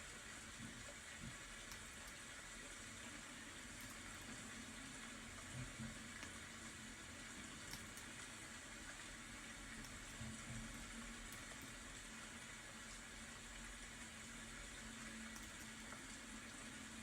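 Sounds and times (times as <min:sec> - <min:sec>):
steady rain hiss: 0:00.0 - 0:17.0
faint ticks: 0:00.6 - 0:02.2, 0:05.5 - 0:06.4, 0:07.6 - 0:08.2, 0:15.1 - 0:16.2.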